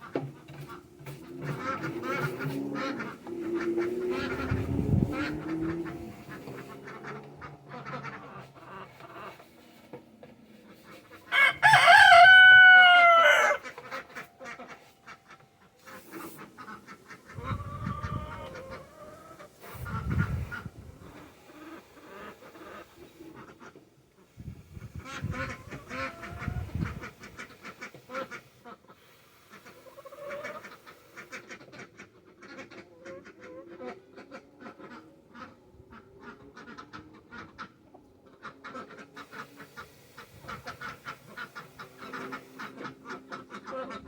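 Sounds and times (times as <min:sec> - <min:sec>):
fowl calling: 0:00.0 - 0:09.8, 0:10.7 - 0:23.9, 0:36.2 - 0:44.0
rooster crowing: 0:11.3 - 0:13.7.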